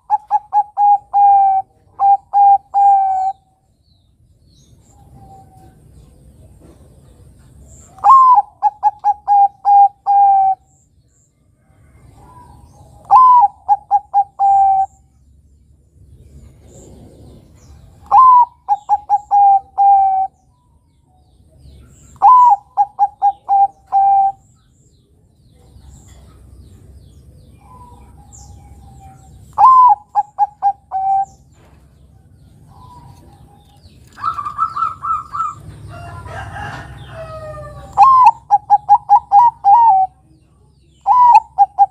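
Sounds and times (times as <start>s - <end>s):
dove cooing: 0.0s - 3.4s, 8.0s - 10.7s, 12.2s - 15.0s, 16.7s - 20.4s, 21.9s - 24.5s, 27.6s - 31.6s, 32.6s - 40.3s, 41.0s - 41.9s
small birds chirping: 0.0s - 41.9s.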